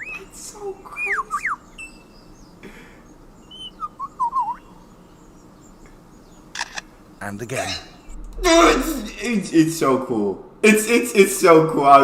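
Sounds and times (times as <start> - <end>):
bird whistled chirps: 0.9 - 2.3, 3.4 - 4.8
bird sharp clicks: 5.8 - 6.9.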